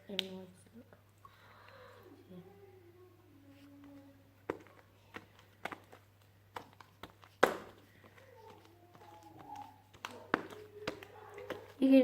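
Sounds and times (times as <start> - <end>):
sharp knocks and taps: 4.5 - 11.8
faint voices: 7.8 - 12.0.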